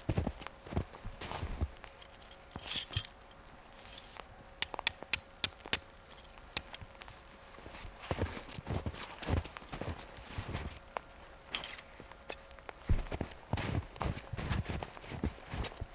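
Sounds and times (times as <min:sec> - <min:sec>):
footsteps: 0:00.0 - 0:01.9, 0:06.7 - 0:15.9
soft rustle: 0:06.1 - 0:15.9.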